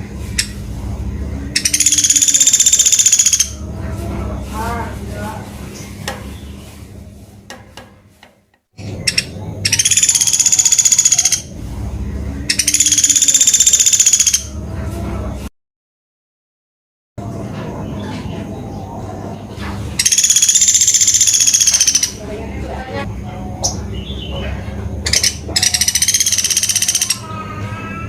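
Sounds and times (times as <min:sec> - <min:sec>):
low steady hum: 0:00.0 - 0:13.8
bird buzzing trills: 0:01.5 - 0:03.6, 0:09.0 - 0:11.5, 0:12.5 - 0:14.5, 0:20.0 - 0:22.2, 0:25.1 - 0:27.2.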